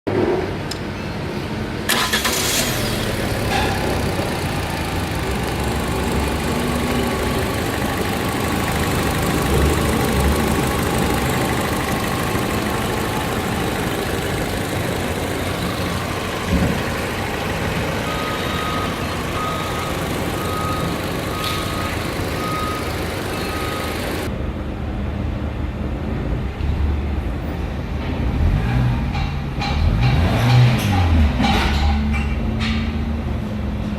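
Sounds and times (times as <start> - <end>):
car engine starting and idling: 1.6 - 24.3
dashboard warning chime beeping: 15.6 - 24.3.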